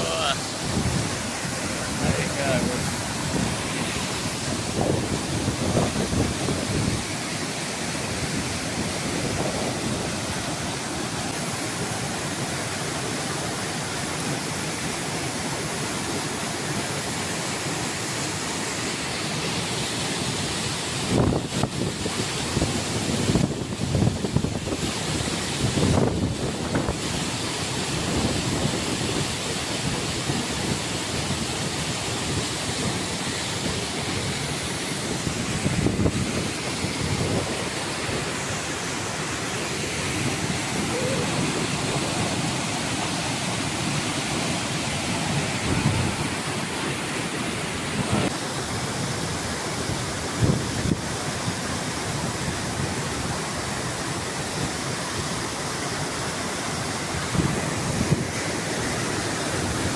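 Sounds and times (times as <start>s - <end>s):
waterfall rushing: 0.0s - 59.9s
wind buffeting microphone: 0.5s - 7.2s, 8.1s - 10.9s, 21.1s - 27.1s, 33.6s - 38.5s, 39.7s - 46.8s, 49.8s - 51.2s, 57.1s - 58.6s.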